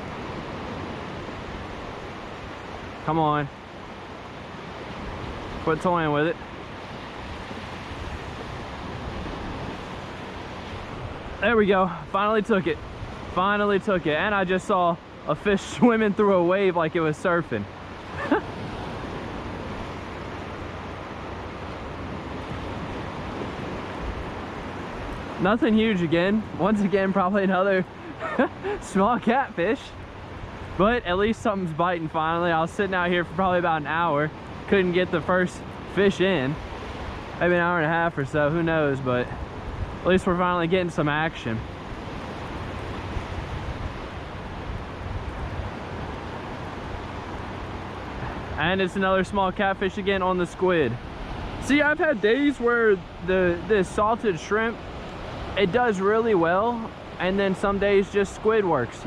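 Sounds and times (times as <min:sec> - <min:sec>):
ocean surf washing onto beach: 0:00.0 - 0:59.0
wind on microphone: 0:39.2 - 0:40.8, 0:41.6 - 0:48.6.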